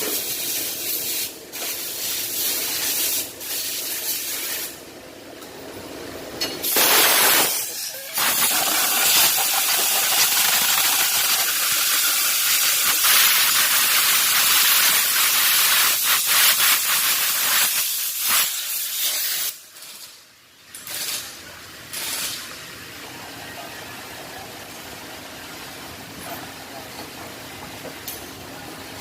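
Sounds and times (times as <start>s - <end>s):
pressurized nozzle spraying: 6.7s - 19.6s.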